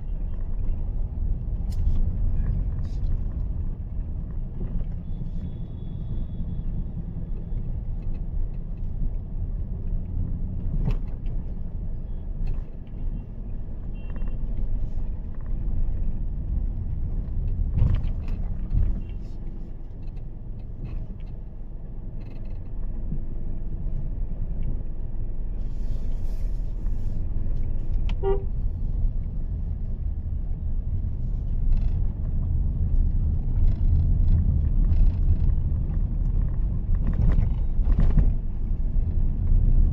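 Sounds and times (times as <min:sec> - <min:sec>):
car engine rumble: 0:00.0 - 0:39.9
car horn toot: 0:28.1 - 0:28.5.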